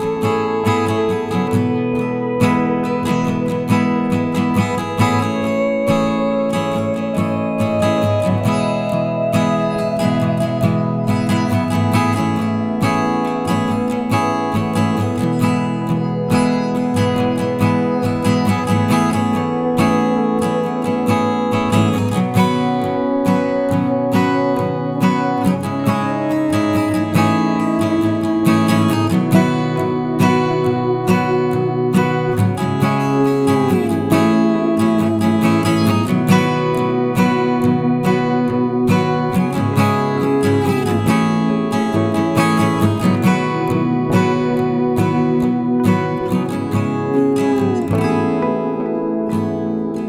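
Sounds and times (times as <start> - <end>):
strummed acoustic guitar music: 0.0 - 50.0.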